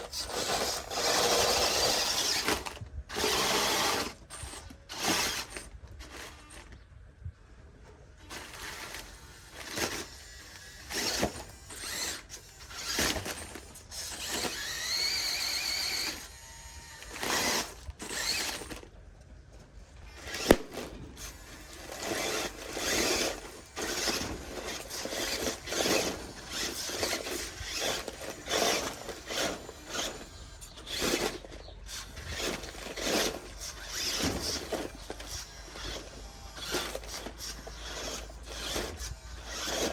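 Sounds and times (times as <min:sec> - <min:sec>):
toy truck motor whining: 0:00.0 - 0:06.8, 0:08.2 - 0:19.0, 0:20.1 - 0:39.9
tyres scrabbling on dirt: 0:08.2 - 0:39.9.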